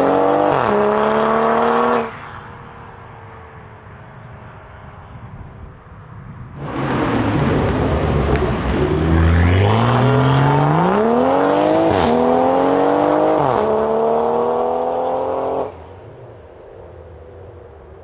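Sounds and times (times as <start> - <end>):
exhaust crack on upshift: 6.6 - 10.0
car engine accelerating hard: 6.6 - 15.7.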